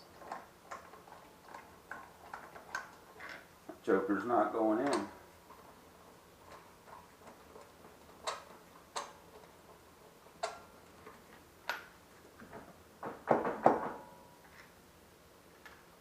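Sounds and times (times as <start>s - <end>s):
knocks and clanks: 11.7s - 14.2s.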